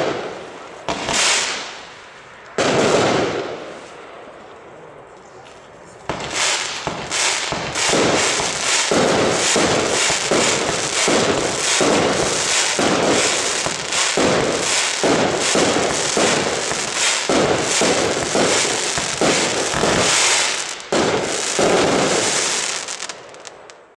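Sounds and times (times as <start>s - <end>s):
fireworks firing in rapid succession: 0.0s - 2.0s, 2.6s - 3.8s, 6.0s - 23.9s.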